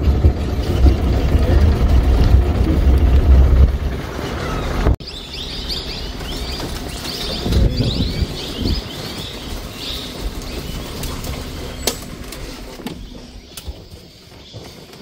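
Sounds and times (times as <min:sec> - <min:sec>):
low rumble: 0:00.0 - 0:14.0
small birds chirping: 0:04.1 - 0:15.0.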